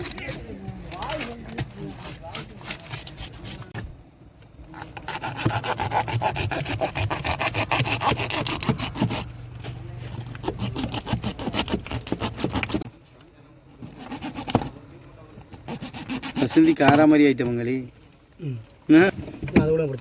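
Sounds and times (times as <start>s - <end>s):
knife scraping a fish: 0.0s - 3.8s, 4.8s - 12.9s, 13.8s - 14.8s, 15.4s - 17.0s.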